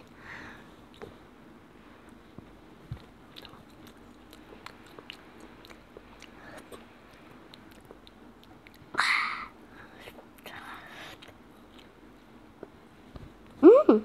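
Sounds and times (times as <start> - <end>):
child chewing: 2.8 - 12.8.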